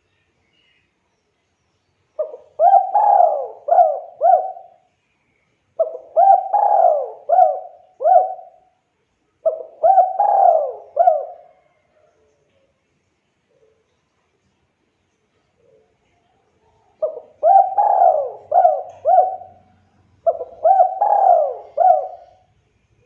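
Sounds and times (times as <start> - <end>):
dove cooing: 2.2 - 4.9, 5.8 - 8.7, 9.4 - 11.8, 16.9 - 22.6.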